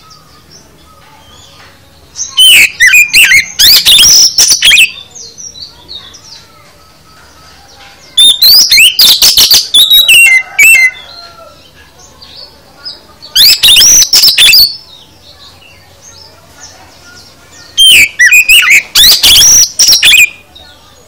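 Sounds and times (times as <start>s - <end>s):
faint bird chirps: 0.0s - 21.0s
songbird whistling and chattering: 0.0s - 21.0s.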